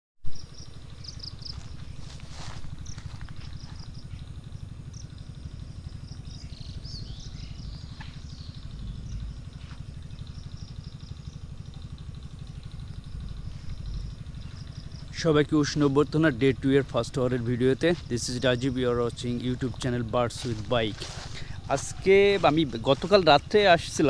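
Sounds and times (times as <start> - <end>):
motorcycle engine idling: 0.3 - 24.0
small birds chirping: 0.3 - 24.0.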